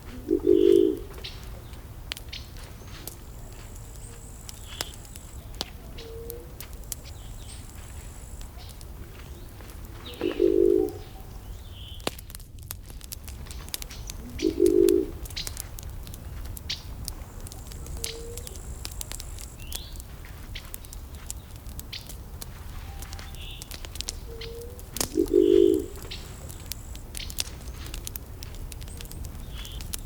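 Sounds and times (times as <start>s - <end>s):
burning wood crackling: 0.0s - 30.0s
small birds chirping: 0.0s - 30.0s
low-pitched bird call: 0.1s - 1.1s, 10.0s - 12.0s, 14.2s - 15.1s, 24.3s - 26.3s.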